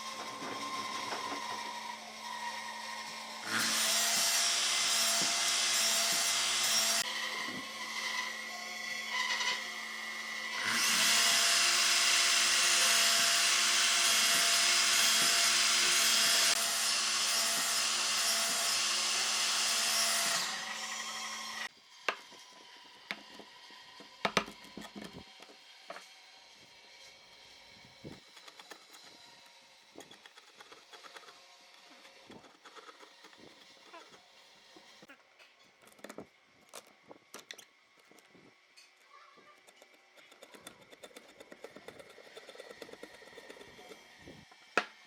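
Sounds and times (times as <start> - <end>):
power tool working wood: 0.0 - 35.1.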